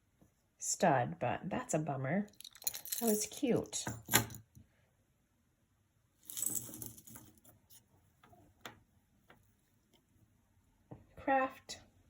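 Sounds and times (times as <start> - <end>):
jewelry rustling clatter: 2.3 - 4.5, 6.2 - 7.8.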